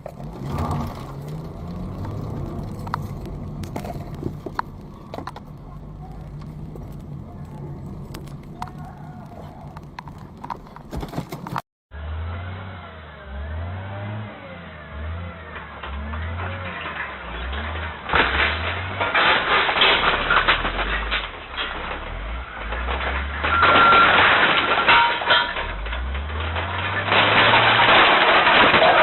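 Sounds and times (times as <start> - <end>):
clicks and knocks: 0.0 - 11.6.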